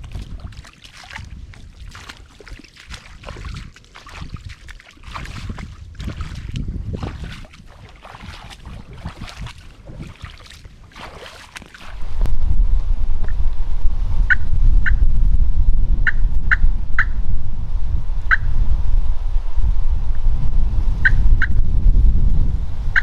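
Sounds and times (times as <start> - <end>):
footsteps crackling through brush: 0.0 - 12.2
loud low rumble: 12.0 - 23.0.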